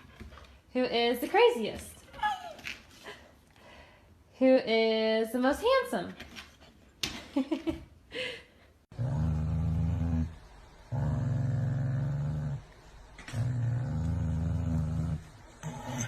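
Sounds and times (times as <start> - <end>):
animal growling: 8.9 - 16.0.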